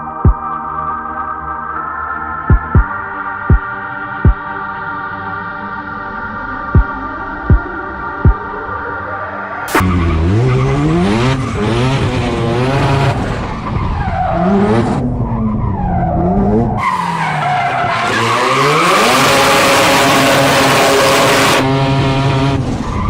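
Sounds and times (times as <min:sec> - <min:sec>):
car engine revving: 0:09.7 - 0:23.0.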